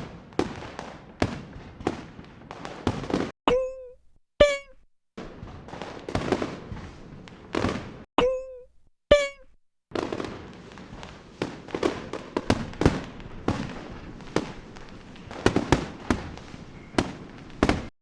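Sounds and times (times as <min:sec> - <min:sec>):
fireworks bangs and crackling: 0:00.0 - 0:03.3, 0:05.2 - 0:08.1, 0:09.9 - 0:17.9.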